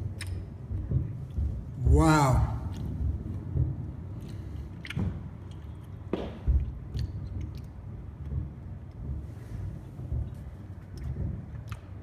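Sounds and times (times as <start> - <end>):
sharp fireworks cracks: 0.0 - 12.0
distant fireworks booming: 0.6 - 5.4, 6.0 - 12.0.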